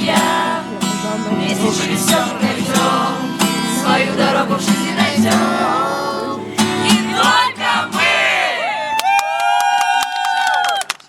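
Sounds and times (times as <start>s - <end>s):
strummed acoustic guitar: 0.0s - 8.5s
people singing: 0.0s - 8.8s.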